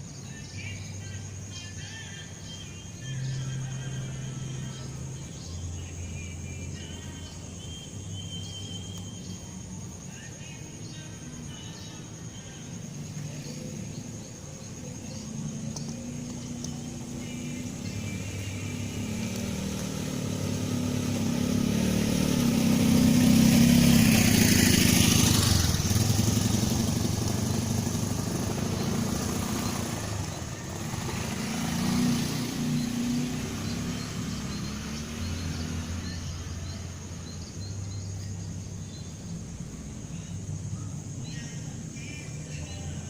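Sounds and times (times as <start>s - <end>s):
motorcycle engine passing by: 0.4s - 43.0s.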